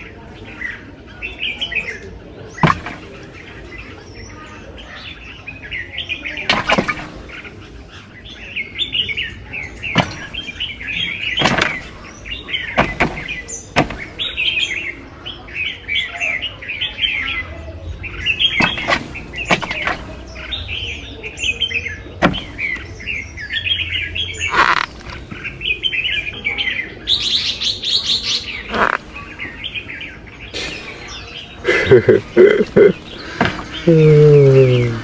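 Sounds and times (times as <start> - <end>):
birds chirping: 0.0 - 35.0
sharp knocks: 2.6 - 3.4, 6.5 - 7.5, 10.0 - 10.7, 11.4 - 14.5, 18.6 - 20.4, 22.2 - 22.8, 32.5 - 34.2.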